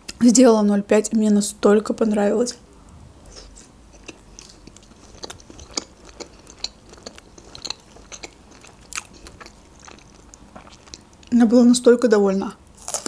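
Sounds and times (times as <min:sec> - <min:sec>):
chewing food: 0:03.3 - 0:11.4.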